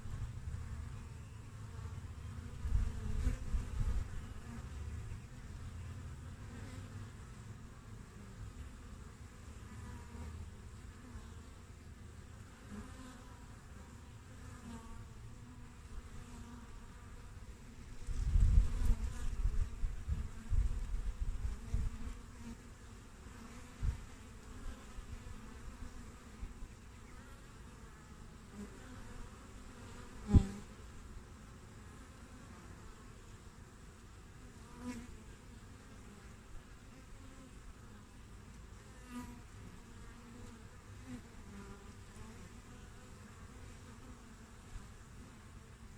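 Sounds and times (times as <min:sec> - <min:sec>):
honeybees buzzing: 0:00.0 - 0:45.9.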